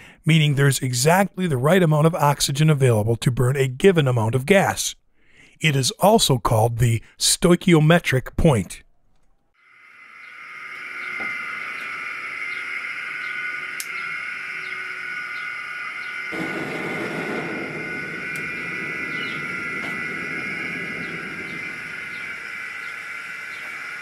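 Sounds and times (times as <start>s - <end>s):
gas flame hissing: 9.6s - 24.0s
burner roaring: 10.6s - 24.0s.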